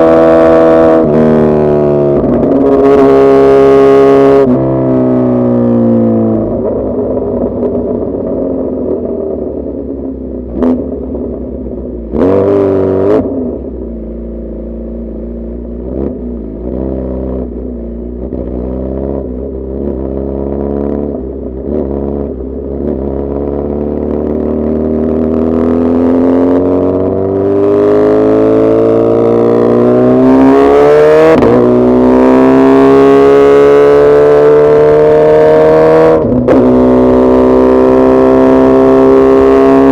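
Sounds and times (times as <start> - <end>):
motorcycle engine running: 0.0 - 30.4.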